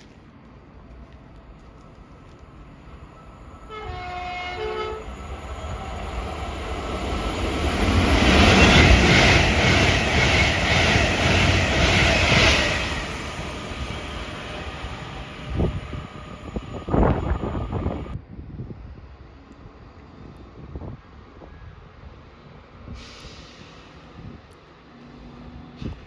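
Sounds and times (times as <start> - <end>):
train horn blast: 3.6 - 5.3
train wheels clattering over rails: 5.4 - 18.2.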